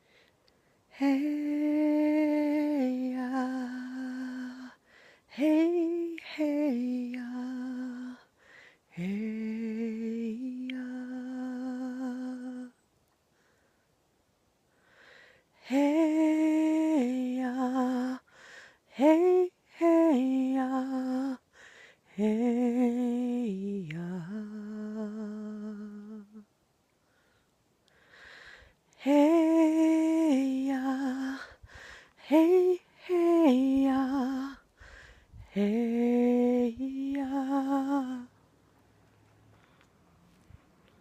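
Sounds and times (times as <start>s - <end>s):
breaths: 0.0s - 1.0s, 4.7s - 5.4s, 8.1s - 9.0s, 13.2s - 14.0s, 14.6s - 15.6s, 18.2s - 18.9s, 21.4s - 22.2s, 27.0s - 28.9s, 31.3s - 32.3s, 34.6s - 35.6s, 39.3s - 41.0s
woman chanting: 32.2s - 34.7s, 35.4s - 38.4s.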